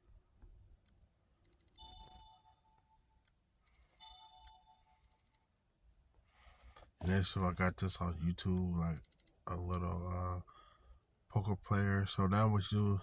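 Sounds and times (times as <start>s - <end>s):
soft ticks: 0.4s - 1.8s, 2.7s - 5.5s, 8.4s - 9.4s
bright electronic chime: 1.8s - 3.0s, 4.0s - 5.0s.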